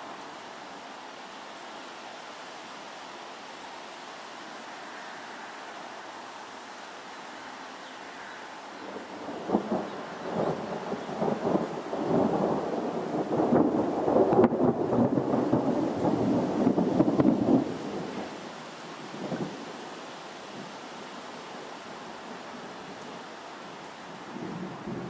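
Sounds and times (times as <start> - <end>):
steady background hiss: 0.0 - 25.0
thunder rumbling and crackling: 9.1 - 18.2.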